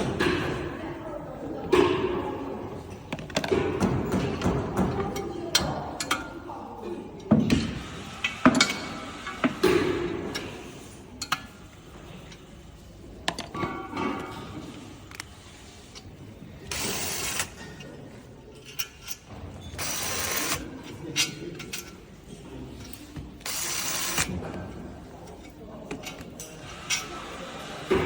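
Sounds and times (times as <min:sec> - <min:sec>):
clicks and knocks of tools: 0:02.9 - 0:06.4, 0:11.2 - 0:11.6, 0:13.2 - 0:16.1, 0:16.7 - 0:22.1, 0:25.2 - 0:27.2.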